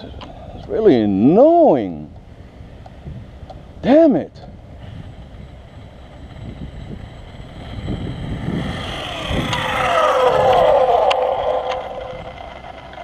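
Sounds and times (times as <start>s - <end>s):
rc truck motor whine passing: 4.7s - 13.0s.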